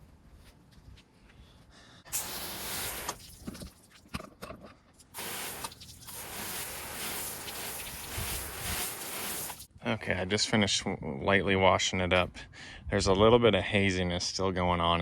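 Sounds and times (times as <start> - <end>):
water spraying hiss: 2.1 - 3.7, 5.1 - 9.7.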